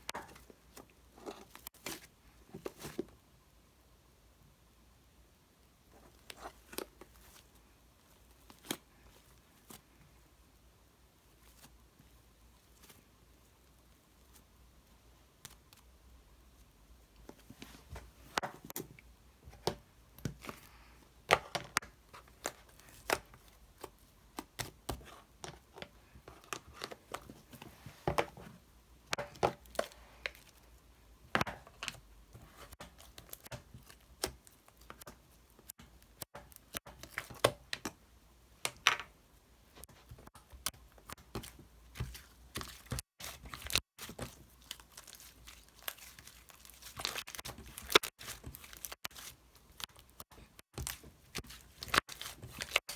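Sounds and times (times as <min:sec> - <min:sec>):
crinkling and tearing: 0:42.0 - 0:52.9.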